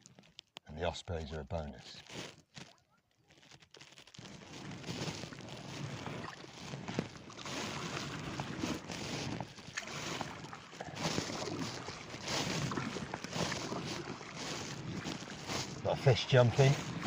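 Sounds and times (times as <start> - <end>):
kayak paddle splashing: 4.2 - 17.0
small sharp splashes: 4.6 - 17.0.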